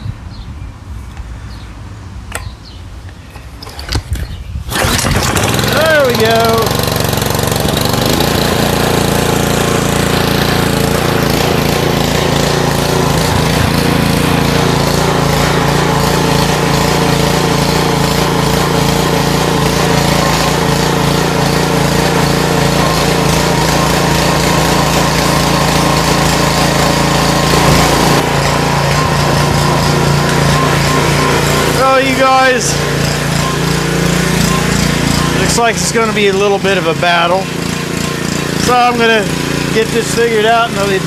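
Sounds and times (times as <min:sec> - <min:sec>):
small gasoline engine running: 0:03.6 - 0:41.0.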